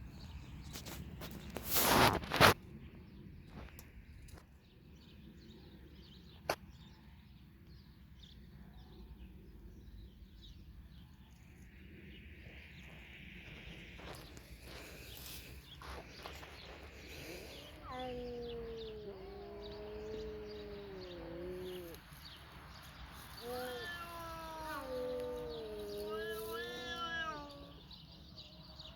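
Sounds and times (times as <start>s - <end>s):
faint ticks and rustles: 11.2s - 27.9s.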